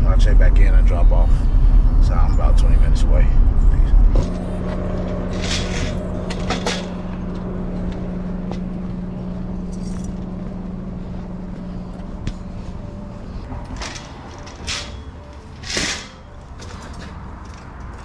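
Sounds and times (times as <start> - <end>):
truck engine and road drone: 0.0 - 18.0.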